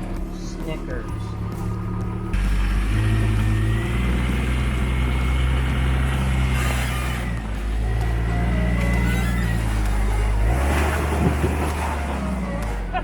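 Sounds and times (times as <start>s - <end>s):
car engine running off-road: 0.0s - 13.0s.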